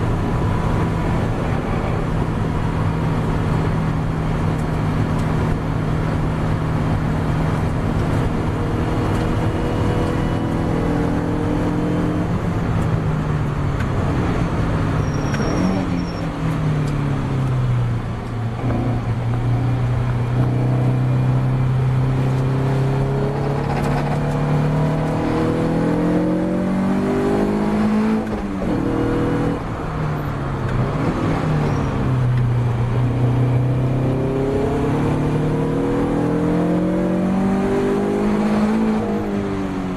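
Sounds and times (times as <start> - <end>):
race car engine revving: 18.5 - 29.6, 32.8 - 39.8.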